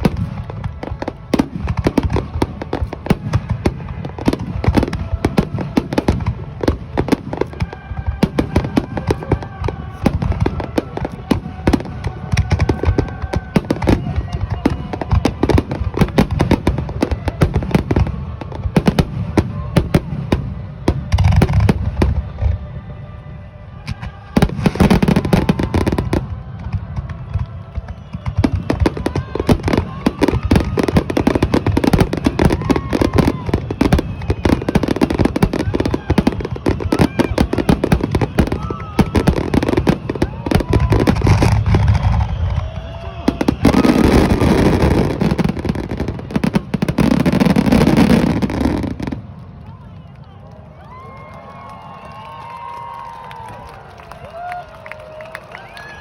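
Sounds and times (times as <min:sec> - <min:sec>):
fireworks bursting: 0:00.0 - 0:56.0
fireworks whistles: 0:23.8 - 0:50.4.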